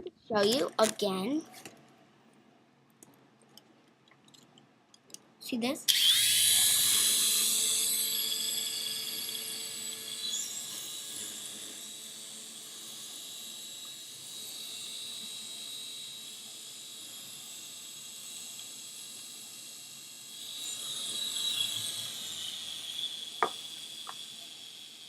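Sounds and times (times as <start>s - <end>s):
toy helicopter motor whining: 5.9s - 25.0s.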